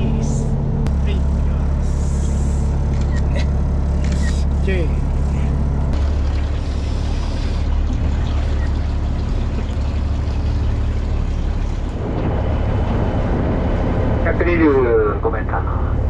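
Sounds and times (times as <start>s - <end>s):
boat engine humming: 0.0s - 16.0s
wind: 0.0s - 16.0s
water noise: 5.9s - 14.3s.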